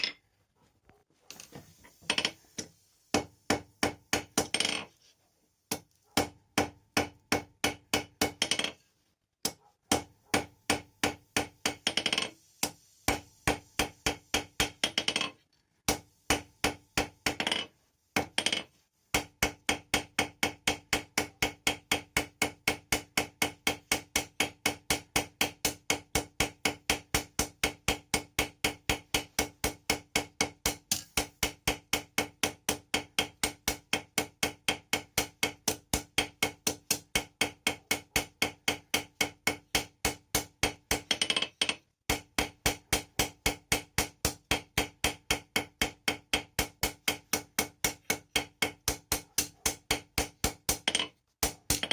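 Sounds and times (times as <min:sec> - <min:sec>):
hammer striking steel on anvil: 0:19.2 - 0:41.3, 0:42.1 - 0:51.9.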